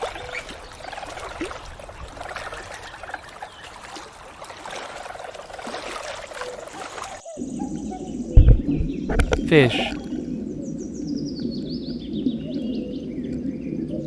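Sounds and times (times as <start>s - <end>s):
water trickling and splashing: 0.0s - 7.3s.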